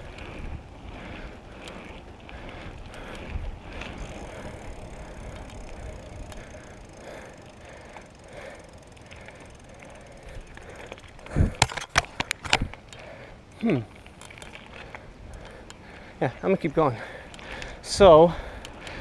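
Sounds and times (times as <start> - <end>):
bicycle tyres rolling: 0.0 - 19.0
faint ticks: 1.6 - 11.6, 12.2 - 15.8.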